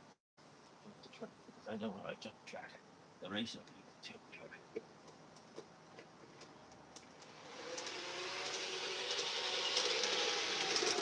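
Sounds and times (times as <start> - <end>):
model train running on track: 7.6 - 11.0.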